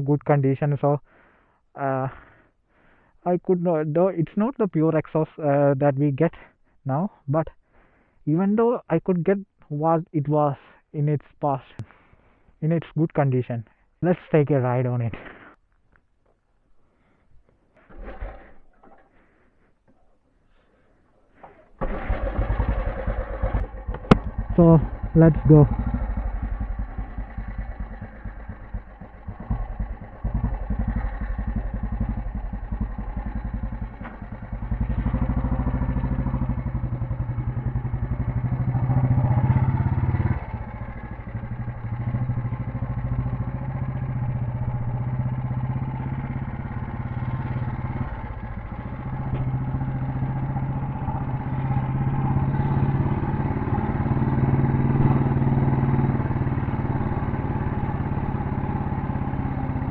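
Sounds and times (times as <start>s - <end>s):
single-cylinder motorcycle engine: 17.8s - 19.1s, 21.4s - 59.9s.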